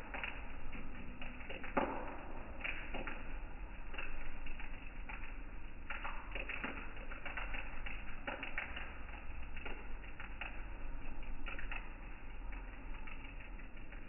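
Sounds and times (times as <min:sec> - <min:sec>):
rain pattering on a puddle: 0:00.0 - 0:14.0
sharp drip taps: 0:00.0 - 0:14.0.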